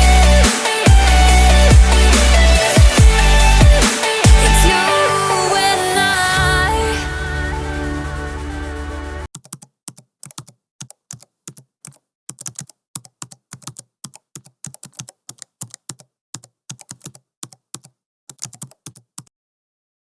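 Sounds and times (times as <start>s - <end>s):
background music: 0.0s - 9.3s
computer keyboard typing: 9.3s - 19.3s.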